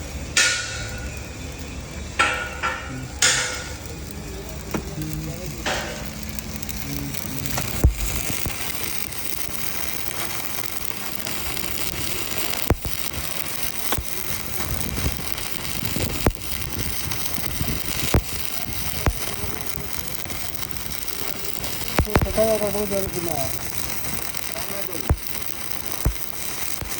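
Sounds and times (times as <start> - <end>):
arc welding crackling: 0.0 - 26.9
sharp clicks: 7.4 - 26.9.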